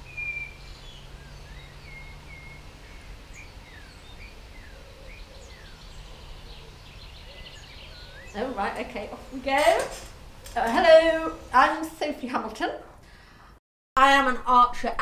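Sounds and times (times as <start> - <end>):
bird chirps and whistles: 0.0 - 5.8
low outdoor rumble: 0.0 - 13.1.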